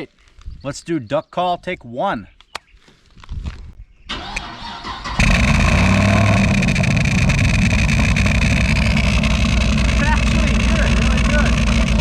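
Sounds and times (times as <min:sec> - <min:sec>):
car engine cranking and running: 0:04.1 - 0:12.0.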